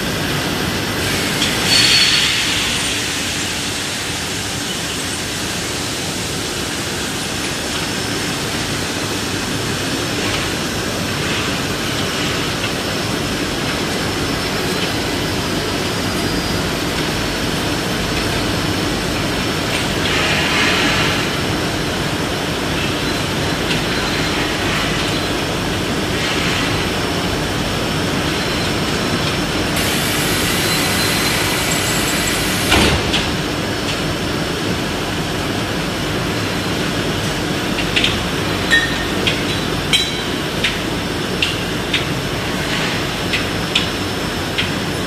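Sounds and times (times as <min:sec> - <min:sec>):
industrial machinery noise: 0:00.0 - 0:45.0.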